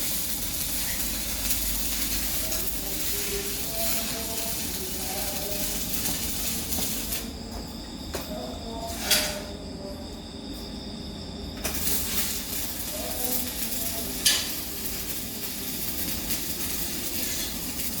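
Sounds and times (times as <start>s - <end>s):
welding arc crackling: 0.0s - 7.4s, 11.6s - 18.0s.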